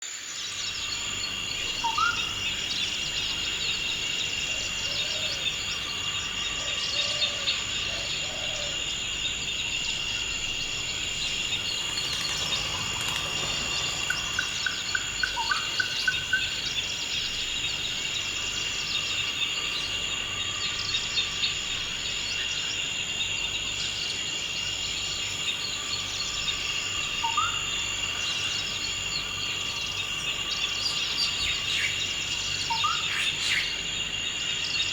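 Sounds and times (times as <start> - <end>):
crickets droning: 0.0 - 34.9
birds calling: 9.9 - 22.0.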